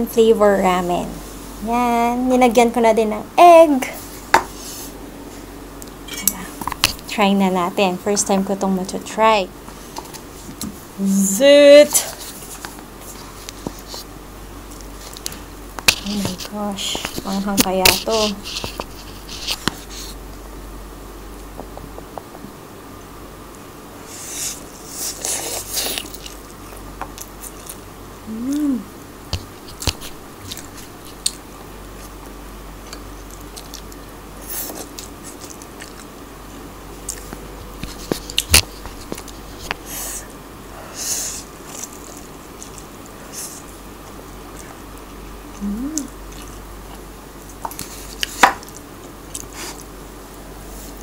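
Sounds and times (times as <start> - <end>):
person humming mm: 28.2 - 29.0, 45.5 - 46.2
wet chewing: 32.8 - 36.1, 41.6 - 44.8, 45.5 - 49.9.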